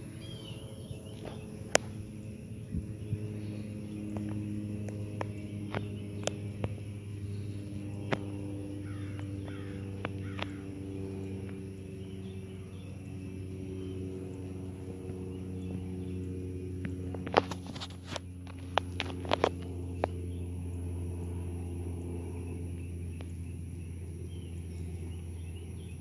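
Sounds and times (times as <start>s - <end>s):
low hum: 0.0s - 26.0s
harsh crow-like bird calls: 7.2s - 12.9s.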